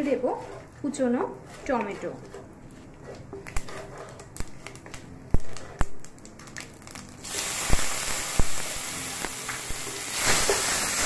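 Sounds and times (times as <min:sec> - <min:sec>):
tomatoes sizzling in hot oil: 0:06.8 - 0:11.0.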